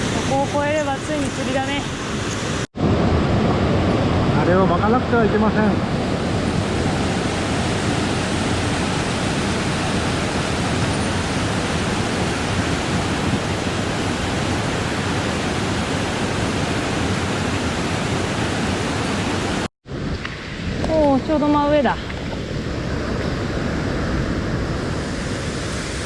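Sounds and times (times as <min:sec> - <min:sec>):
water rushing over rocks: 0:00.0 - 0:19.7.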